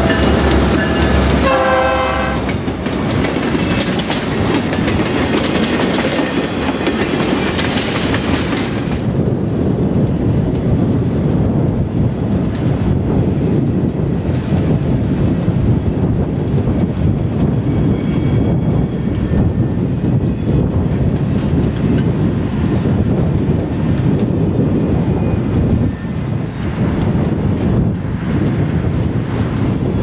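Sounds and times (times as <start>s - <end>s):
high wheel squeal: 0.0s - 4.1s, 16.2s - 19.6s
freight train rumbling past: 0.0s - 30.0s.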